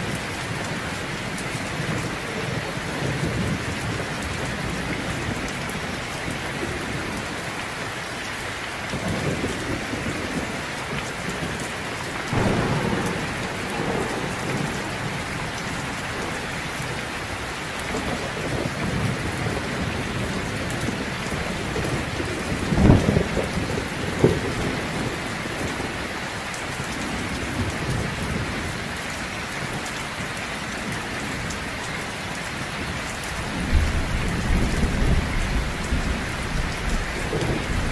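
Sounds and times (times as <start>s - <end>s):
heavy rain falling: 0.0s - 37.9s
thunder rumbling: 8.9s - 26.1s, 33.2s - 37.9s
sharp thunder cracks: 12.2s - 20.3s.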